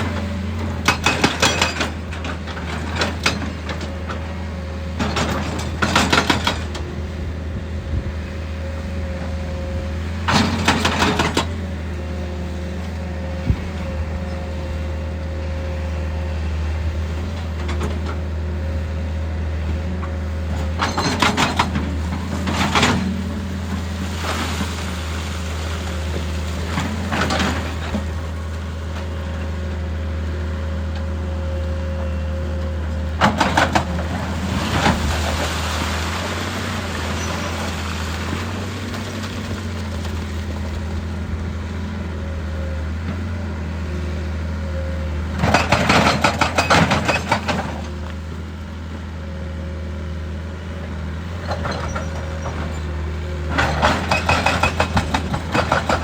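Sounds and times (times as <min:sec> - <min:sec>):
hydraulic rock breaker hammering: 0:00.0 - 0:04.3, 0:05.0 - 0:07.3, 0:10.1 - 0:11.7, 0:20.5 - 0:28.4, 0:33.0 - 0:41.4, 0:45.3 - 0:48.1, 0:53.5 - 0:56.0
excavator diesel engine running: 0:00.0 - 0:56.0.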